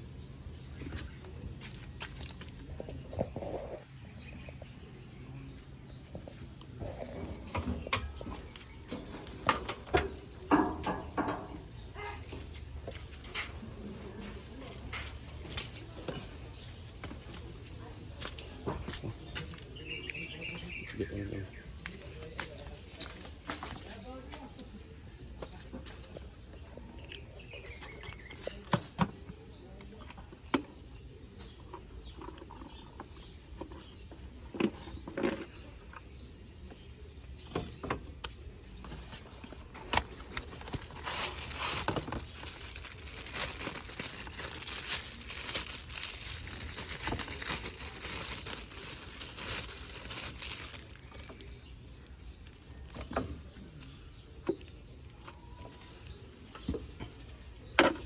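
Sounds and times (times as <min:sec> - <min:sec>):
filter rustling and scraping: 0:38.4 - 0:51.3.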